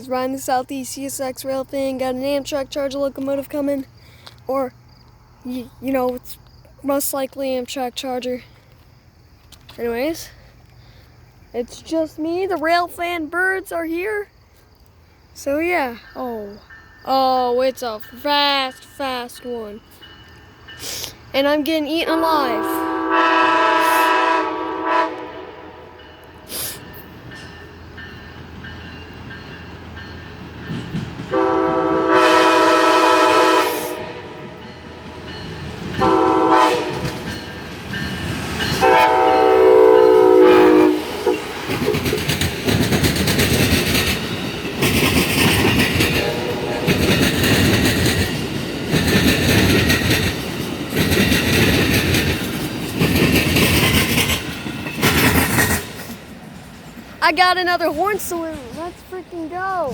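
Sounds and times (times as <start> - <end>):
train horn blasts: 22.4 - 26.4, 31.3 - 34.6, 36.0 - 37.2, 38.8 - 41.6, 46.1 - 47.1
train wheels clattering over rails: 26.0 - 33.0, 34.0 - 39.2, 41.0 - 59.3.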